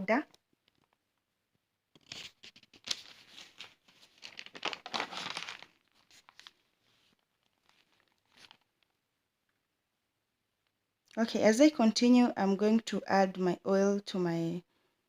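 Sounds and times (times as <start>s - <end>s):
spice packet crinkling and tearing: 2.0s - 9.0s.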